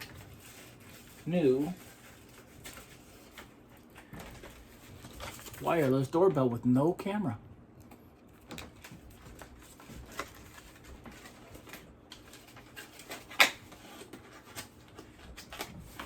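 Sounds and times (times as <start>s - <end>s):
packaging clicks and rustles: 8.4s - 16.0s.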